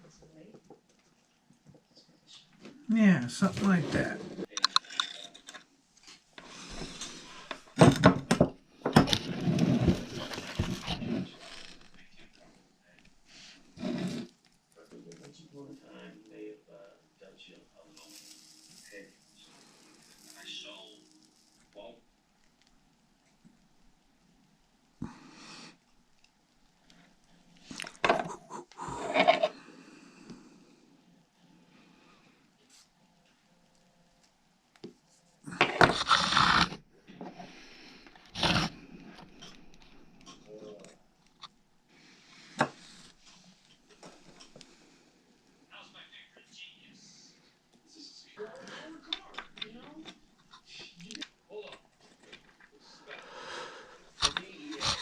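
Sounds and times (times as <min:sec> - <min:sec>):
clattering and scraping: 0:03.4 - 0:12.3, 0:13.6 - 0:14.4, 0:27.7 - 0:29.6, 0:35.5 - 0:40.4, 0:54.1 - 0:55.0
soft rustle: 0:17.9 - 0:21.8
rubbing: 0:35.6 - 0:36.8.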